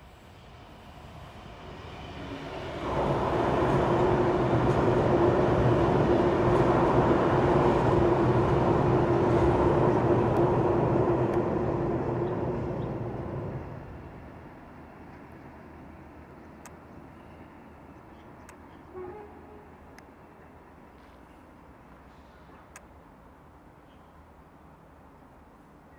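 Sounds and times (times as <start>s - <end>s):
train wheels rumbling on rails: 0.0s - 19.3s
electric train hum: 0.0s - 25.9s.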